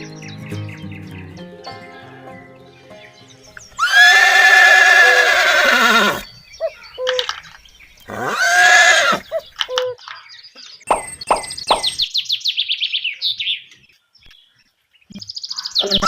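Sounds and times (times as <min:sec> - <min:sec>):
horse whinnying: 0:03.8 - 0:06.3, 0:08.1 - 0:09.4.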